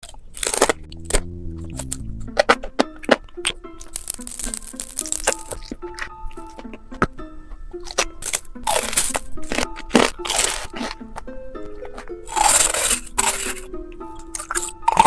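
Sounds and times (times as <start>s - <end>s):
background music: 0.4s - 15.0s
crunchy chewing of food: 7.8s - 11.2s, 11.8s - 15.0s.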